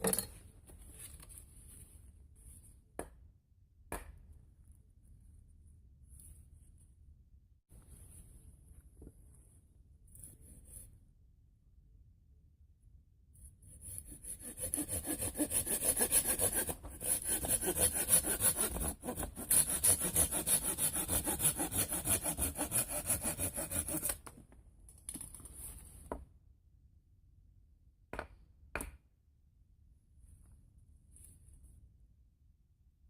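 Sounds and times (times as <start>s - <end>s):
hand saw cutting wood: 13.8s - 24.2s.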